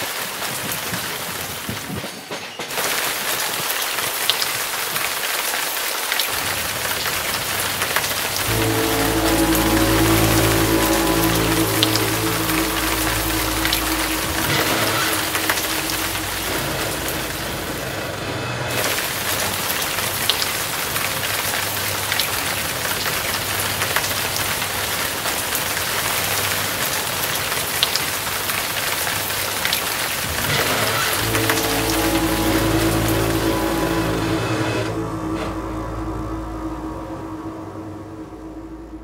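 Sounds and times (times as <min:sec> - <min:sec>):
dense even hiss: 0:08.4 - 0:18.1.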